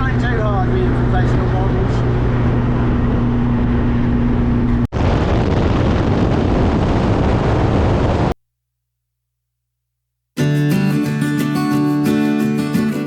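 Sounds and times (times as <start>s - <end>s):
car engine hum: 0.0s - 4.9s
road and wind noise: 0.0s - 4.9s.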